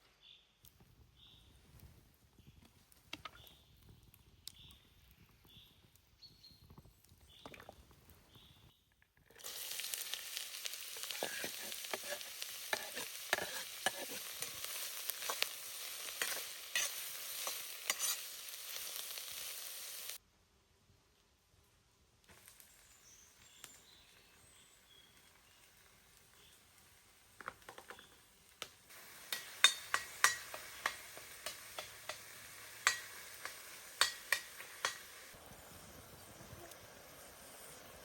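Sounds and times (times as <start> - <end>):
small bird chirping: 1.1 - 7.6
food sizzling in a frying pan: 9.3 - 20.2, 22.3 - 38.0.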